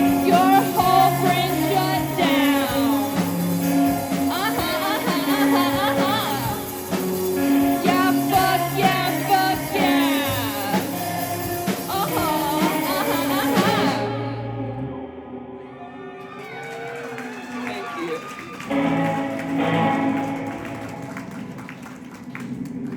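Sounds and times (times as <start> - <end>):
rock band playing live: 0.0 - 14.8, 17.5 - 22.9
person singing: 0.0 - 15.0.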